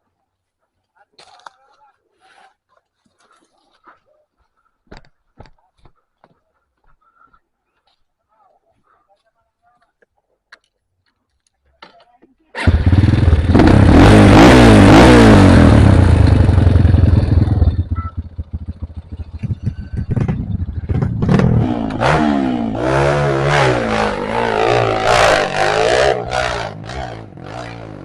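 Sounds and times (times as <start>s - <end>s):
motorcycle engine revving: 12.6s - 28.0s.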